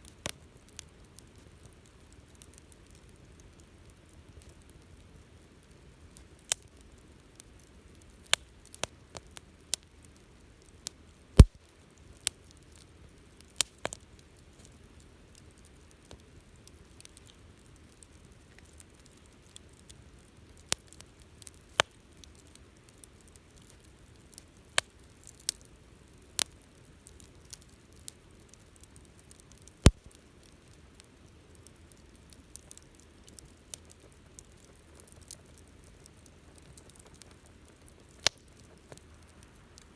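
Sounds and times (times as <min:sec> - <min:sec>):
campfire popping and snapping: 0:00.0 - 0:39.9
faint low hiss of fire: 0:00.0 - 0:39.9
loud fire cracks: 0:11.4 - 0:11.7, 0:28.9 - 0:30.2.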